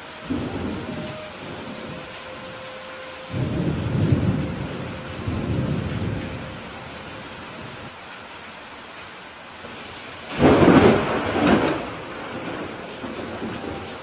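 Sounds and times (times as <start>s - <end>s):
steady rain: 0.0s - 14.0s
rolling thunder rumble: 0.2s - 7.9s, 9.7s - 14.0s
thunder crack: 0.3s - 2.5s, 3.3s - 6.8s, 10.3s - 14.0s.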